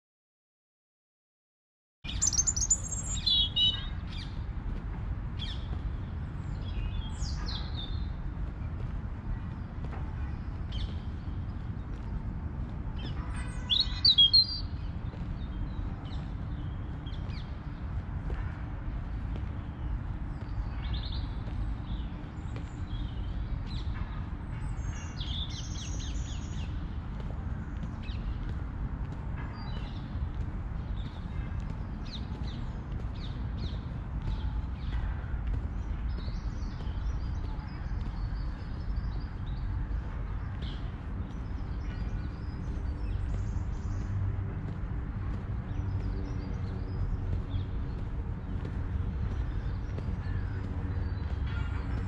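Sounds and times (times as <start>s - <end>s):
birds chirping: 2.1s - 4.4s, 5.3s - 52.0s
birds chirping and trilling: 2.1s - 4.4s, 13.0s - 14.8s
steady low rumble: 2.4s - 52.0s.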